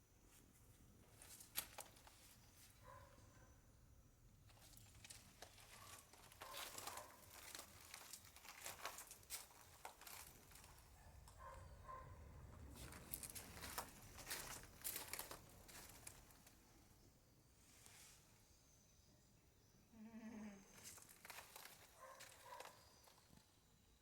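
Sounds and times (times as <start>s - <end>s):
small animal feeding crinkling: 4.5s - 16.6s, 20.8s - 23.4s.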